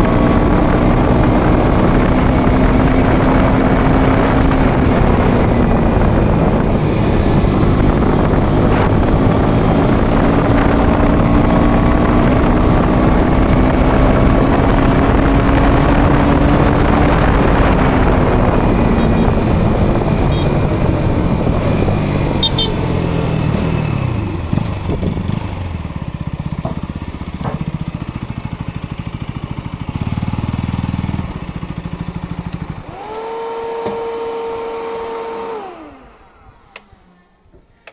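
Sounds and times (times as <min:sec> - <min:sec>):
wind noise on microphone: 0:00.0 - 0:26.0
motorcycle engine: 0:00.0 - 0:37.9.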